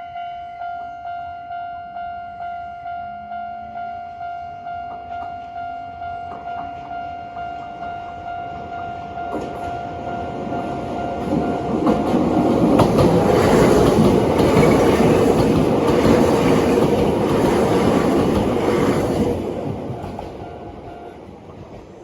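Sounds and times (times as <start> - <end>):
train wheels clattering: 10.5 - 22.0.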